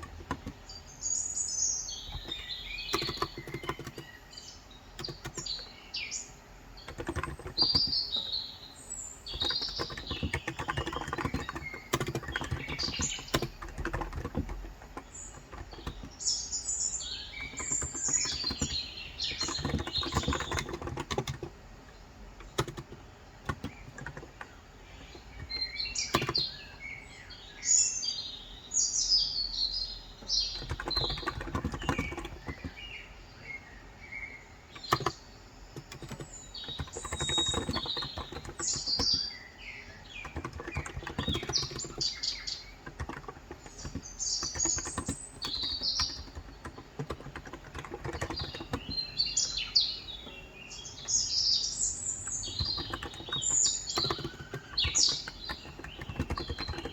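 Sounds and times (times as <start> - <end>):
keyboard keystrokes: 0.0 - 0.8, 1.9 - 5.8, 6.8 - 8.5, 9.2 - 16.4, 17.0 - 27.0, 30.2 - 33.4, 34.7 - 39.4, 40.0 - 56.9
small birds chirping: 0.0 - 56.9.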